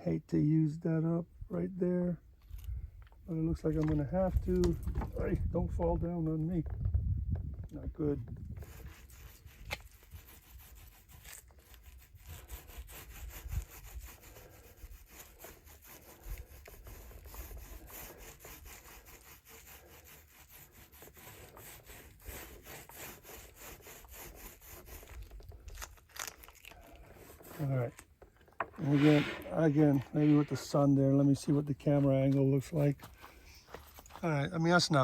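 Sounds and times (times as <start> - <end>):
brush rubbing on cloth: 8.6 - 34.3.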